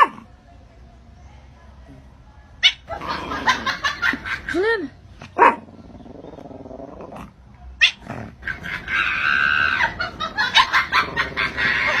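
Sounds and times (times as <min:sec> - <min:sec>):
animal crying out: 0:07.8 - 0:12.0.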